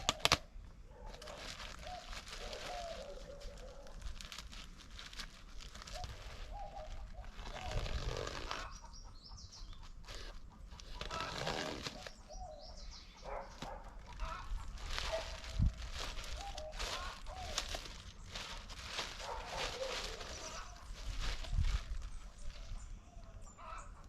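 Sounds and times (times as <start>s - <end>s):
birds calling: 0.0s - 4.1s, 5.6s - 24.0s
rustling: 1.0s - 8.8s, 10.0s - 12.3s, 13.3s - 23.3s.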